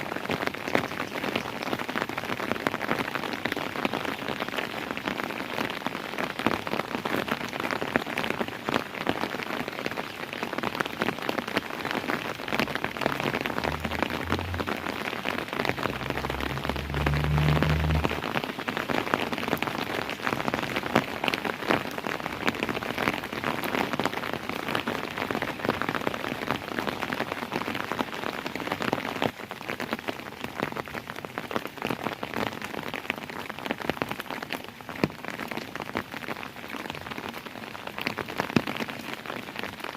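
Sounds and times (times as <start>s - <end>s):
steady rain falling: 0.0s - 39.9s
low rumble: 12.6s - 18.4s.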